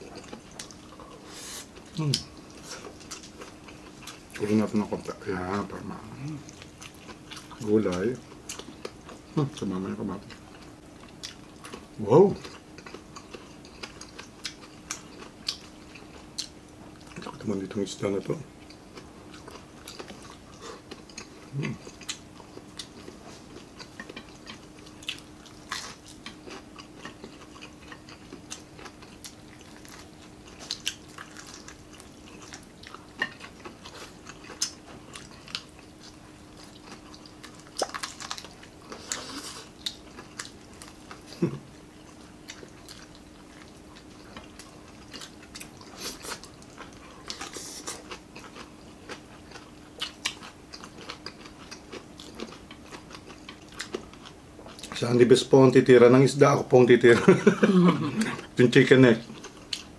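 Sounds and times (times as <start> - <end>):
chewing crunches: 0.0 - 17.6, 18.6 - 55.2, 58.1 - 59.9
faint steady hum: 0.0 - 59.9.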